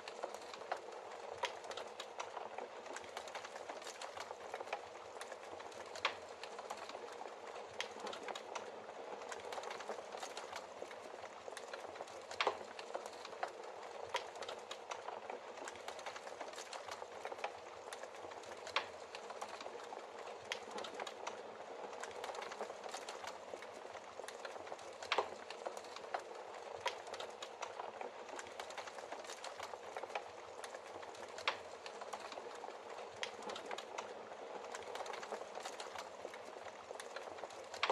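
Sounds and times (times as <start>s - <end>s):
logs crackling in fireplace: 0.0s - 37.9s.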